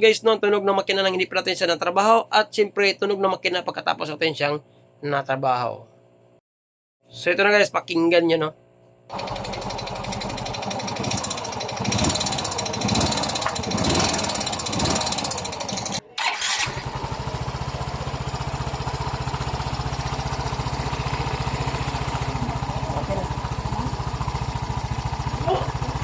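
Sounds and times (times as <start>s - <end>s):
scooter engine idling evenly: 9.1s - 16.0s, 16.7s - 26.0s
scooter engine ticking and knocking: 9.1s - 16.0s, 16.8s - 26.0s.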